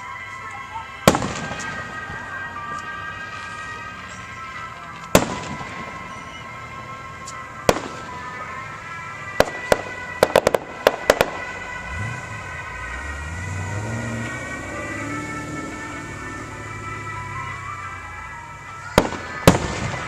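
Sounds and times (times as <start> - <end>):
crackling fireworks reports: 0.0 - 13.2, 14.0 - 20.0
fireworks bursting: 1.0 - 6.4, 7.2 - 8.6, 9.3 - 11.6, 18.9 - 20.0.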